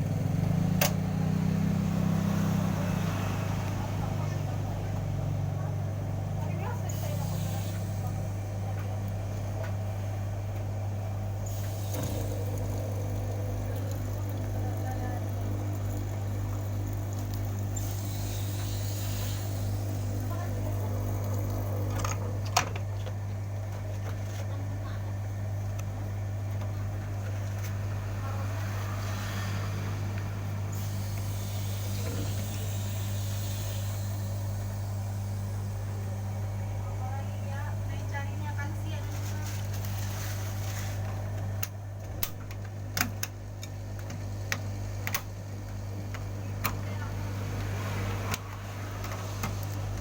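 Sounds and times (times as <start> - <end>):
washing machine humming: 0.0 - 50.0.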